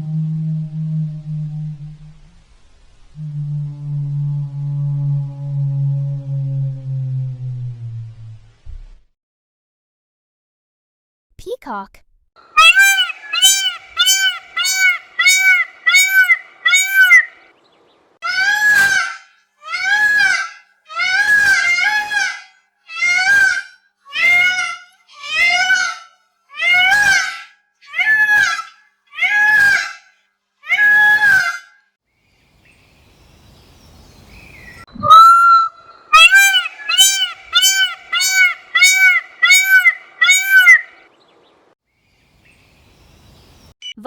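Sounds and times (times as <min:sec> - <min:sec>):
peacock calling: 0:12.5 - 0:30.0, 0:30.7 - 0:31.6, 0:32.6 - 0:41.6.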